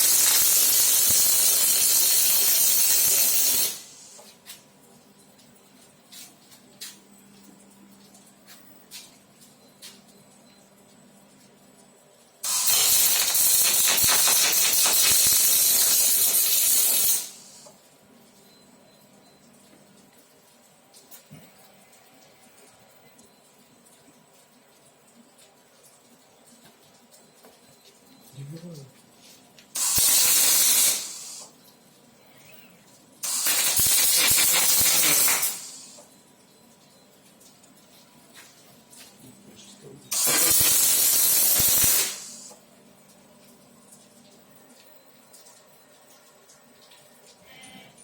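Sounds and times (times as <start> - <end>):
welding arc hissing and crackling: 0.0 - 4.4, 12.4 - 17.8, 29.7 - 31.5, 33.2 - 36.1, 40.1 - 42.6.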